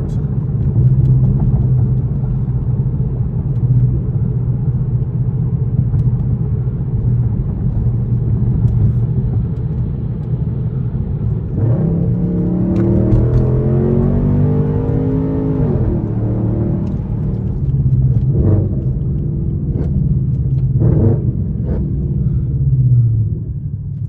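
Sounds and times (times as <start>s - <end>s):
car exhaust droning: 10.5s - 24.0s.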